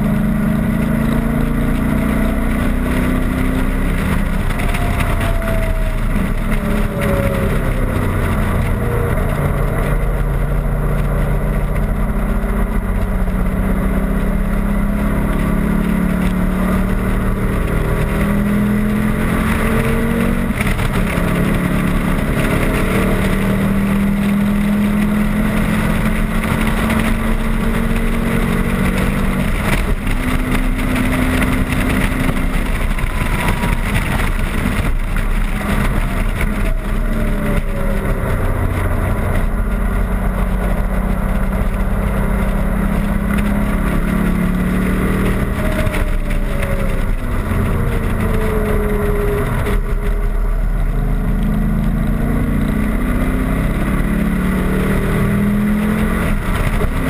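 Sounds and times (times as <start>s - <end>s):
car engine running hard: 0.0s - 57.0s
wind rush: 15.8s - 57.0s.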